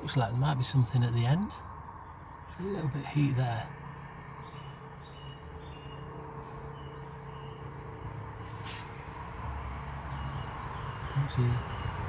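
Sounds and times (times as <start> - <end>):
outdoor ambience hum and hiss: 0.0 - 12.0
short hiss: 8.4 - 8.9.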